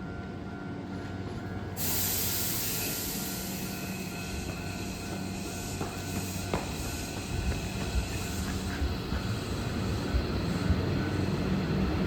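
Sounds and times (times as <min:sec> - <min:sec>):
train low hum: 0:00.0 - 0:12.0
loud air hiss: 0:01.8 - 0:08.7.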